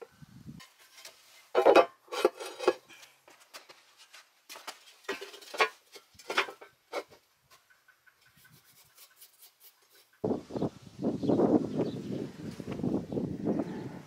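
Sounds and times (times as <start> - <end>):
metal parts scraping on wood: 0.6 - 3.1, 4.8 - 7.2.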